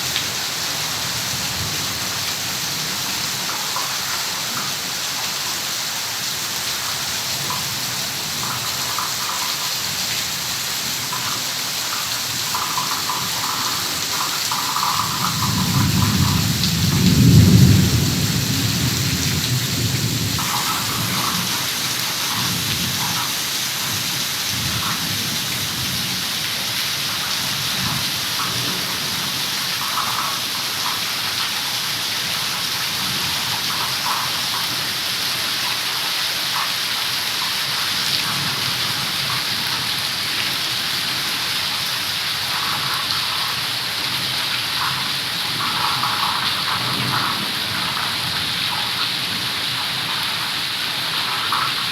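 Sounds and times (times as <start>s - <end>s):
heavy rain falling: 0.0s - 51.9s
low rumble of thunder: 14.9s - 23.1s.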